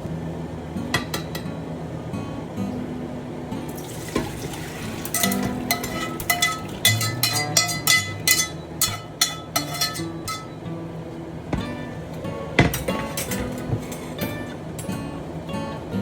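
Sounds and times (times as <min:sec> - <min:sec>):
food frying sizzle: 0:03.6 - 0:10.4
metal spatula clanking in wok: 0:04.2 - 0:10.6, 0:11.5 - 0:14.2.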